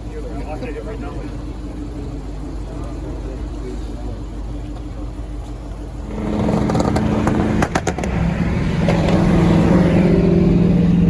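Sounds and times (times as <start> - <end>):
car engine running: 0.0 - 11.0
sharp cracks: 6.2 - 9.3.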